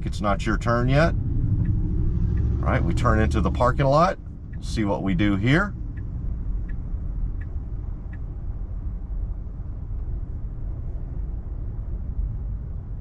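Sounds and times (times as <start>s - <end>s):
turn signal ticks: 1.5s - 8.4s.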